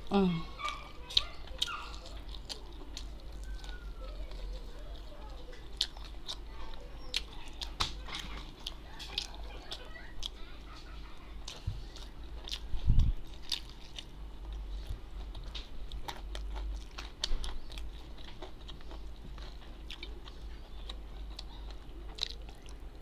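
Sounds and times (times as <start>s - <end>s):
person biting and chewing: 11.5s - 22.8s.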